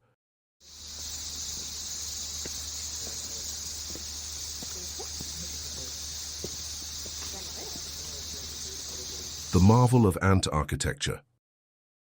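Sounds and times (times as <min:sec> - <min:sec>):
insects chirring: 0:00.6 - 0:09.8.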